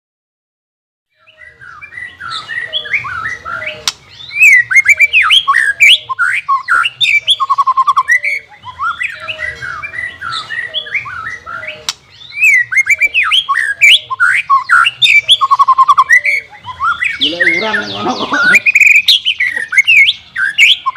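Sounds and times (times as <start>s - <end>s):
songbird whistling and trilling: 1.1s - 20.9s.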